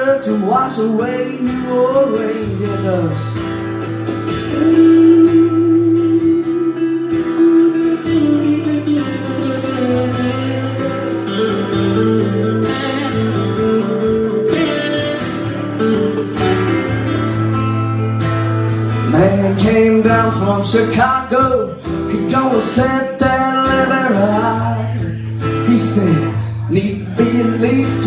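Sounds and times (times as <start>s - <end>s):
lead guitar bending notes: 0.0s - 28.0s
bass line: 2.4s - 28.0s
drums: 3.6s - 4.6s.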